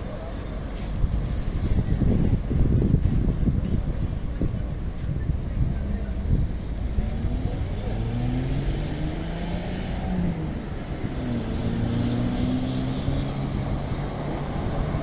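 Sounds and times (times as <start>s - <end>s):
car engine revving: 6.7s - 15.0s.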